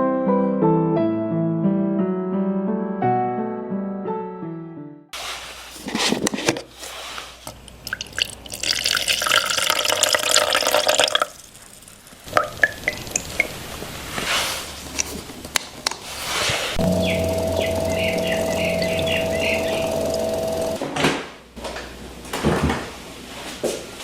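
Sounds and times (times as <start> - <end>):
tap water running into container: 7.4 - 13.6
water trickles and splashes: 7.4 - 13.6.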